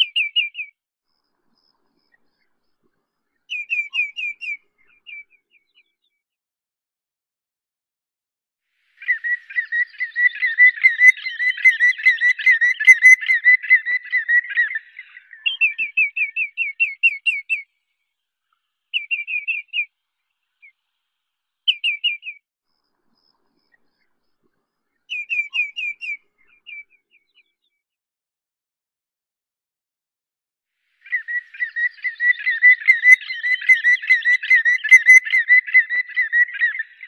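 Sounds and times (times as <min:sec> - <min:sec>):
bird whistling: 0:09.0 - 0:17.6, 0:19.0 - 0:19.9, 0:21.7 - 0:22.4, 0:31.0 - 0:37.0.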